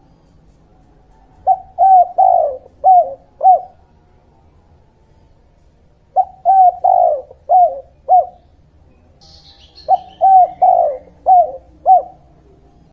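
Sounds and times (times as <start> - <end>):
dove cooing: 1.0 - 3.9, 5.9 - 8.6, 9.4 - 12.9
small bird chirping: 6.1 - 12.9.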